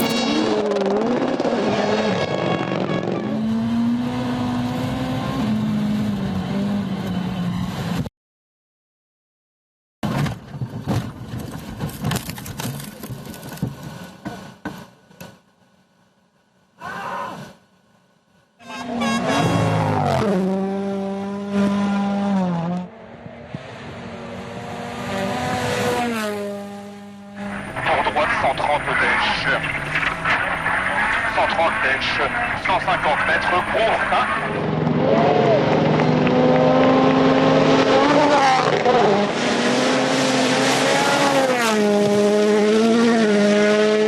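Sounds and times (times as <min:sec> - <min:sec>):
rally car engine revving: 0:00.0 - 0:08.0, 0:18.6 - 0:44.0.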